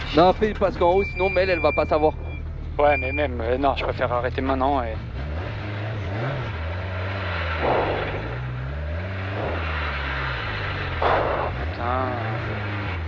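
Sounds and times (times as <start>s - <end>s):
people talking: 0.0s - 5.0s, 11.0s - 12.8s
car engine running: 0.0s - 13.0s.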